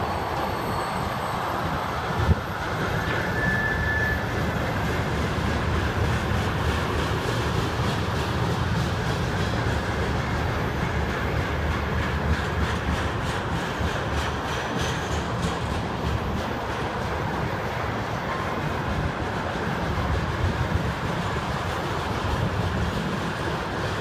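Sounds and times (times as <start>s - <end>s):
brief high squeal: 0.0s - 4.6s
steel wheels rumbling on rail: 0.0s - 24.0s
wheels clicking over rail joints: 2.0s - 24.0s.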